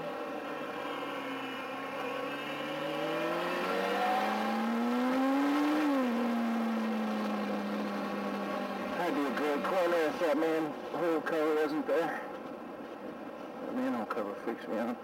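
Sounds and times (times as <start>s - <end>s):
motorcycle engine revving: 0.8s - 10.1s.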